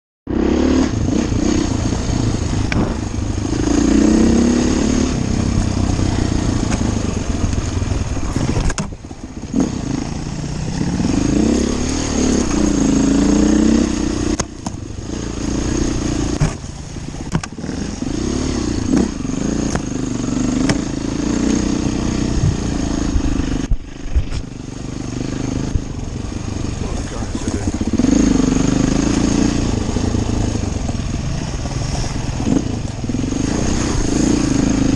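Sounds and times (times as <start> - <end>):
motorcycle engine revving: 0.3 - 34.9
sharp knocks: 17.3 - 17.6, 20.6 - 20.9.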